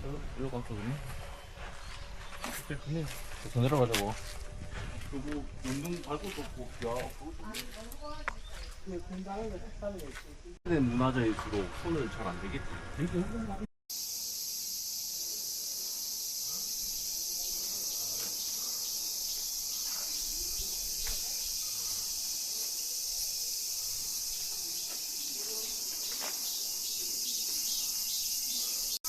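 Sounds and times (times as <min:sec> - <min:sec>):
insect chorus drone: 0:13.9 - 0:29.0.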